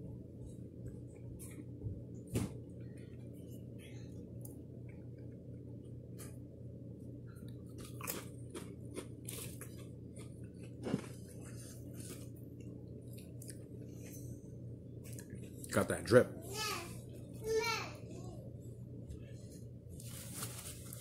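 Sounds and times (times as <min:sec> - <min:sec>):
steady low hum: 0:00.0 - 0:21.0
person chewing crunchy food: 0:07.4 - 0:14.2.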